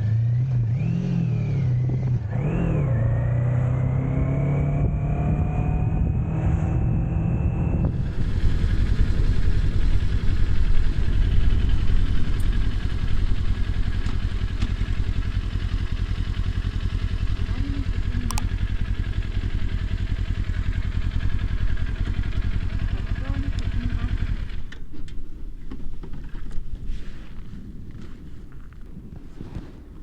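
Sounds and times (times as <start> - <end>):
motorcycle engine running: 3.4 - 30.0
brief click: 18.3 - 18.5.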